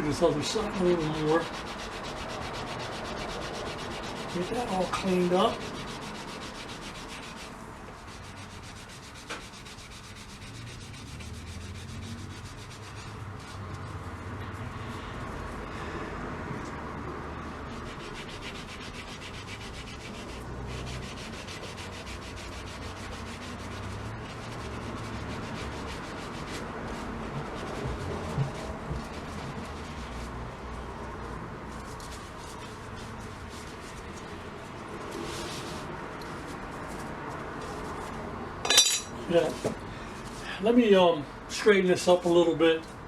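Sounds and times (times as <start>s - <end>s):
scrubbing and rubbing: 0.0s - 15.8s, 17.0s - 40.4s.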